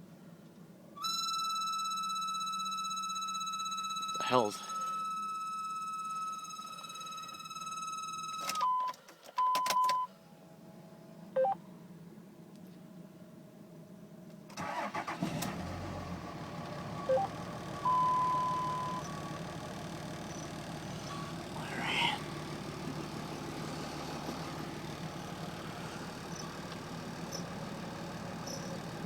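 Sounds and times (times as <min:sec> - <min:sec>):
dashboard warning chimes: 0:01.0 - 0:10.1, 0:17.0 - 0:19.5
diesel engine idling: 0:14.6 - 0:29.0.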